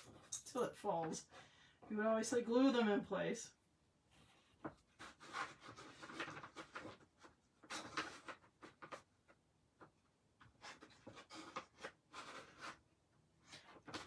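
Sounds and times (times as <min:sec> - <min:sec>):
paper cutouts clicking and scraping: 0:05.0 - 0:09.1, 0:10.4 - 0:12.8.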